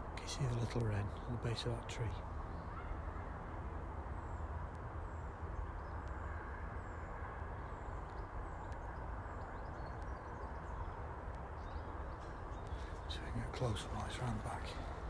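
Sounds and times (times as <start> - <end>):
faint ticks: 5.8 - 6.3, 8.0 - 13.2.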